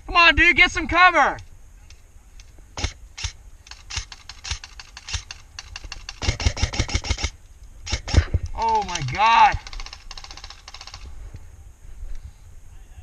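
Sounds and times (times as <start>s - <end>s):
airsoft gun shots: 2.8s - 11.1s.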